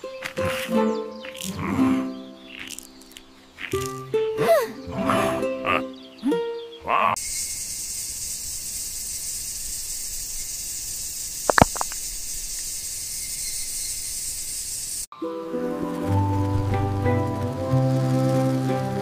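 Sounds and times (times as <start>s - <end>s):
falling water hiss: 7.3s - 15.1s
drip-like clicks: 11.5s - 12.0s.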